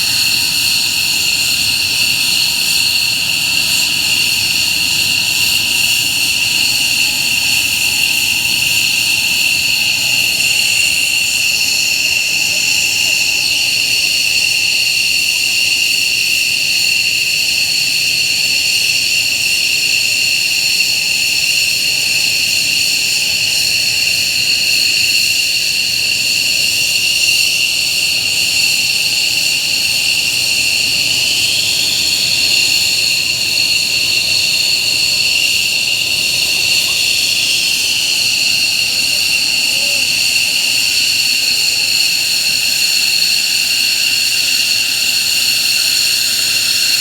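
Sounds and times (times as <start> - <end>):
jet engines whining: 0.0 - 15.7, 25.2 - 47.0.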